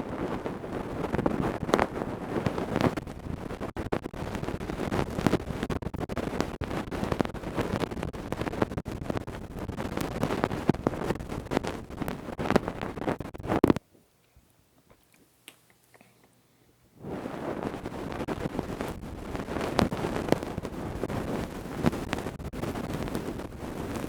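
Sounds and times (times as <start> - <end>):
ear-cleaning tools scraping microphone: 0.1 - 13.8.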